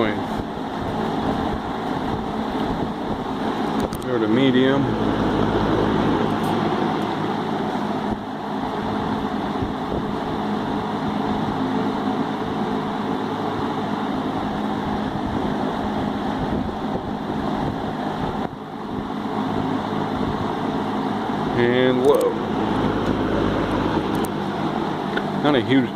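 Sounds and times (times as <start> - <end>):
box fan running: 0.0 - 25.9.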